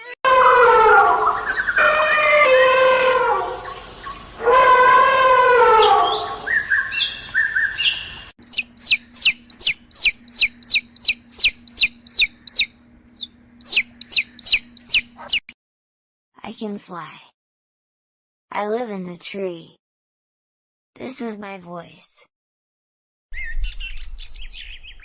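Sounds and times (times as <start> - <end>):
wavering animal call: 0.3 - 7.9, 8.5 - 15.4
bird chirping: 1.2 - 2.0, 3.5 - 4.5, 5.7 - 15.6, 23.3 - 25.0.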